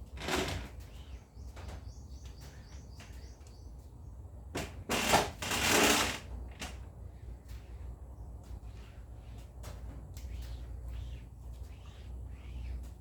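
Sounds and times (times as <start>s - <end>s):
rustling or scraping: 4.9s - 13.0s.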